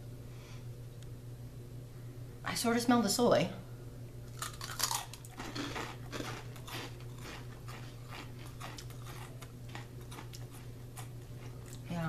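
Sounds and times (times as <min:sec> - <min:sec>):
crunching rice crackers: 0:04.3 - 0:11.9.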